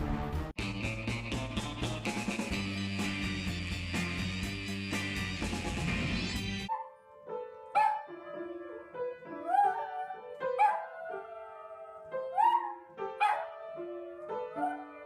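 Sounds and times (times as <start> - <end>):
background keyboard music: 0.0 - 15.0
dog barking in short yelps: 7.8 - 8.0, 10.6 - 10.8, 12.4 - 13.4.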